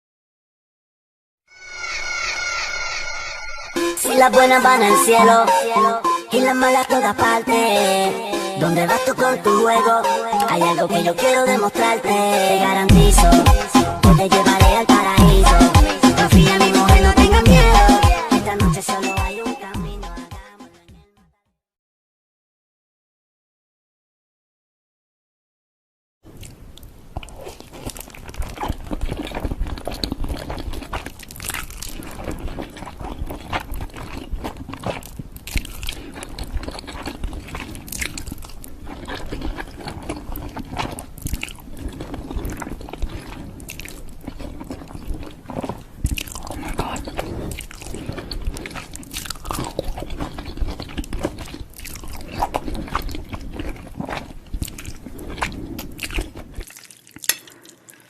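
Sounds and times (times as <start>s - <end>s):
person chewing with wet mouth clicks: 10.4s - 10.7s, 26.3s - 58.0s.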